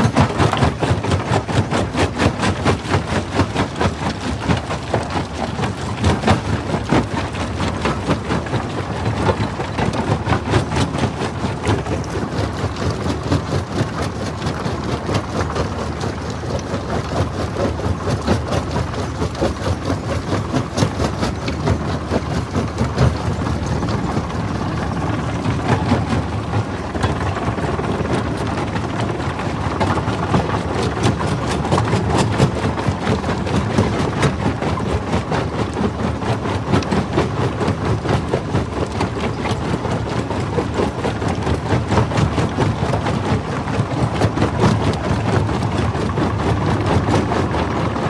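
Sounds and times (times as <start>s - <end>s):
low machine rumble: 3.1s - 48.0s.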